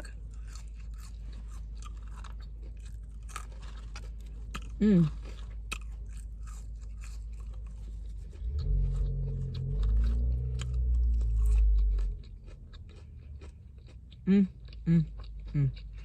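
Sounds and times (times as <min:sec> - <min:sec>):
person chewing food: 0:00.0 - 0:16.0
low hum: 0:06.2 - 0:16.0.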